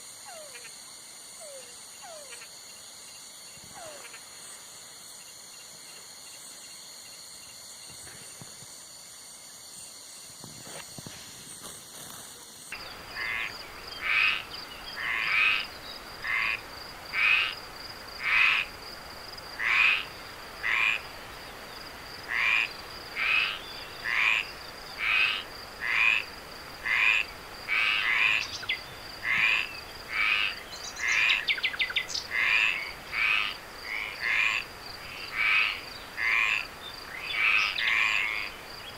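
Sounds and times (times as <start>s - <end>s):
night insect chorus: 0.0s - 38.9s
frog calling: 0.2s - 0.7s, 1.4s - 2.6s, 3.7s - 4.2s, 12.7s - 17.6s, 18.2s - 18.7s, 19.6s - 21.1s, 22.3s - 38.9s.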